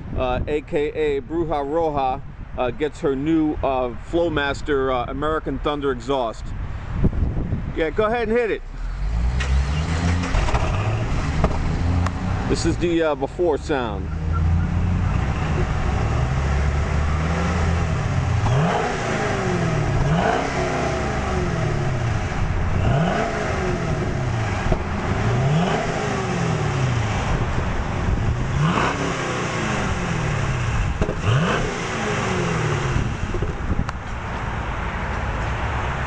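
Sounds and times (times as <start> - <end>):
car engine revving: 8.6 - 34.0.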